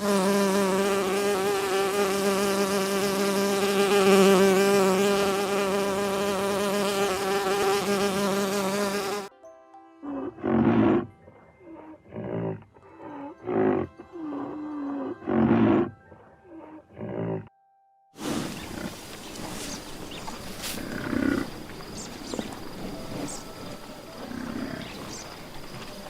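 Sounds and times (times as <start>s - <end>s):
hissing outdoor noise: 0.0s - 9.3s, 18.2s - 26.0s
wild animal calling: 10.0s - 17.5s, 18.3s - 25.8s
faint low animal calls: 18.4s - 26.0s.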